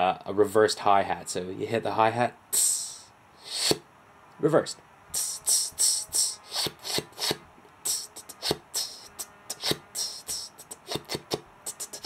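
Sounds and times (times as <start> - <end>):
beatbox inward hissy sips: 2.6 - 3.8, 5.1 - 12.0
beatbox kick thumps: 5.2 - 12.0.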